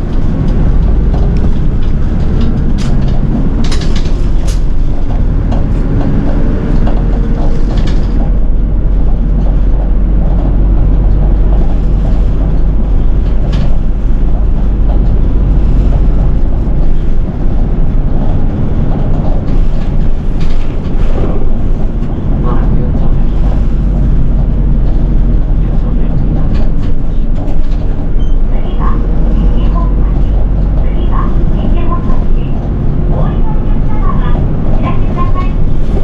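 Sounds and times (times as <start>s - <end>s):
bus fittings clicking and rattling: 0.0s - 28.5s
bus engine and road rumble: 0.0s - 36.0s.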